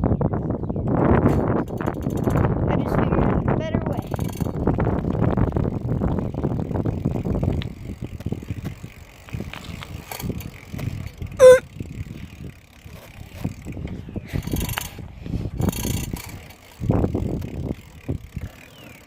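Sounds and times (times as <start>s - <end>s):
wind on the phone: 0.0s - 18.6s
bicycle rattling rumble: 0.0s - 19.0s
bicycle clicking as it rolls: 0.6s - 19.0s
loud pitched squeak: 11.4s - 11.6s.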